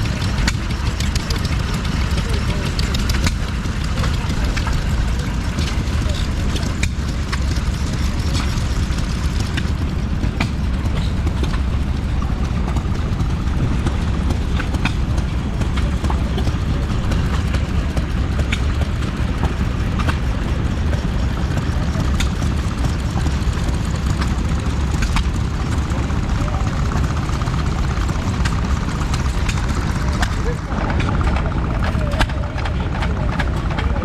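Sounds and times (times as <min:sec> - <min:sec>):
old stationary engine running: 0:00.0 - 0:34.0.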